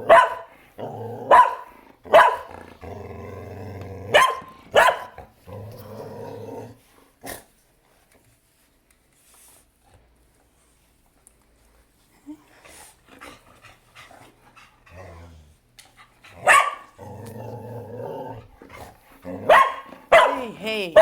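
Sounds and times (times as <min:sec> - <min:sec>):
dog growling: 0:00.0 - 0:04.2, 0:05.1 - 0:07.5, 0:14.2 - 0:21.0
dog barking sharply: 0:00.1 - 0:00.5, 0:01.3 - 0:02.5, 0:04.2 - 0:05.2, 0:16.5 - 0:16.9, 0:19.5 - 0:21.0.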